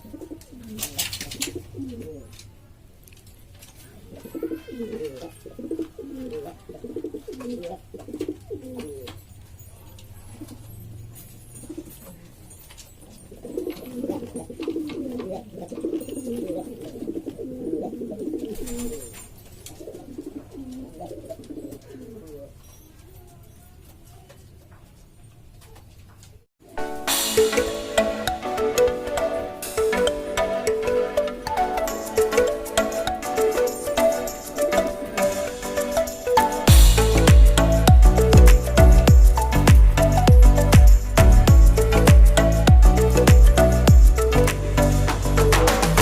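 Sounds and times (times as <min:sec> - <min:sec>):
pigeons cooing: 0:00.0 - 0:02.4, 0:03.8 - 0:09.2, 0:11.6 - 0:12.3, 0:13.0 - 0:22.6.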